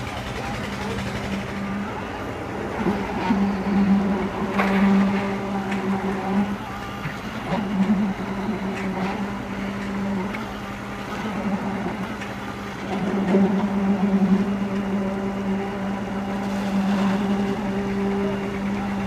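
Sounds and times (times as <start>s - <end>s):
machine engine humming: 0.0s - 19.0s.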